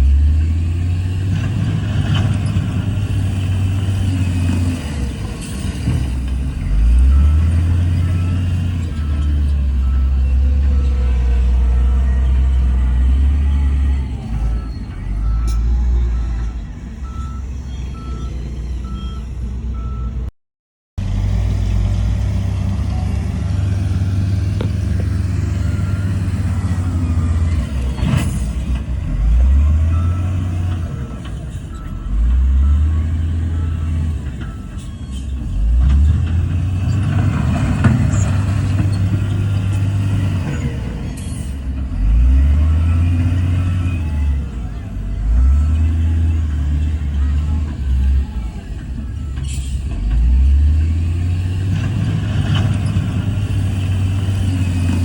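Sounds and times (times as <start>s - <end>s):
diesel earthmoving machines revving: 0.0s - 20.3s, 21.0s - 55.0s
reversing alarm beeping: 6.5s - 20.2s, 24.3s - 35.4s.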